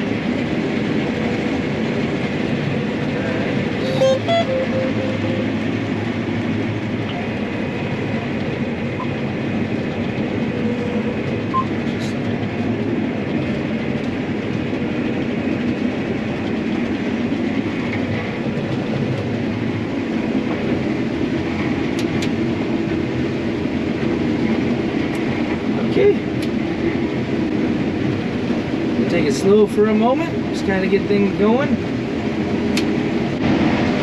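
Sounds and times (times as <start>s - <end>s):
combine harvester running: 0.0s - 30.5s
short beeps: 3.8s - 6.0s.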